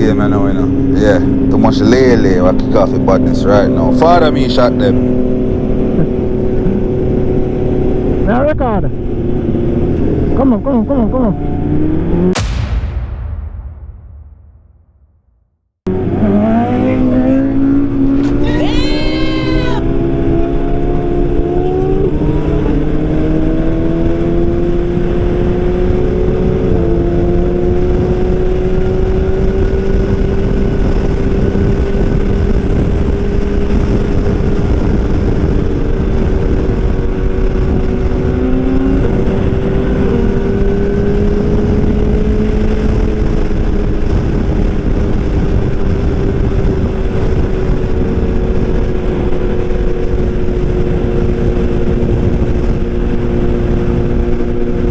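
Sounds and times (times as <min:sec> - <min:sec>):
constant rushing noise: 0:16.6 - 0:19.9.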